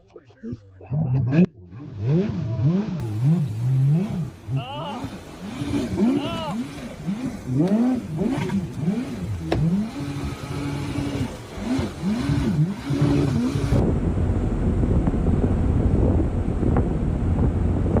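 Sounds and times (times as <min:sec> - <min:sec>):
engine revving: 0:00.9 - 0:18.0
wind rushing on microphone: 0:12.3 - 0:18.0.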